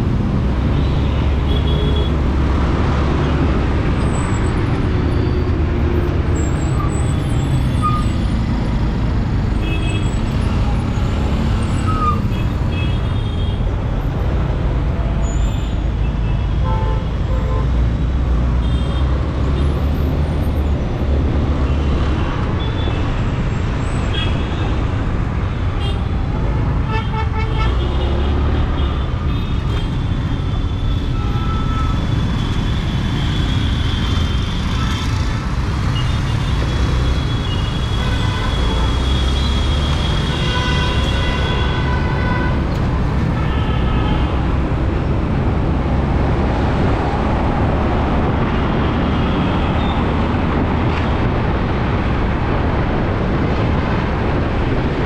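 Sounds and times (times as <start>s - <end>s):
road traffic rumble: 0.0s - 55.0s
vehicle horns honking: 26.6s - 29.9s, 37.4s - 42.6s.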